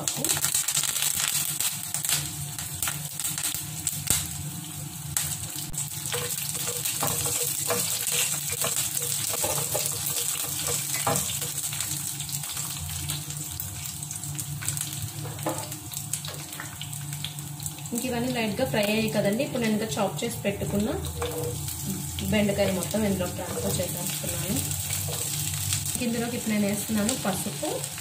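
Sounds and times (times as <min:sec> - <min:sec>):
small crackles: 0:00.0 - 0:04.3
food sizzling in hot oil: 0:00.0 - 0:28.0.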